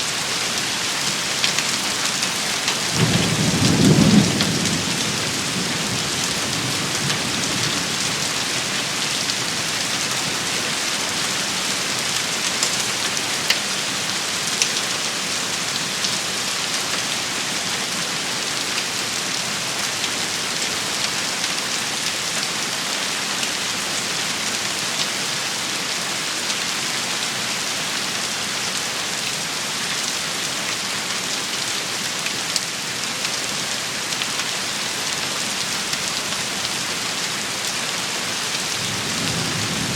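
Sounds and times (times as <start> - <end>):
heavy rain shower: 0.0 - 39.9.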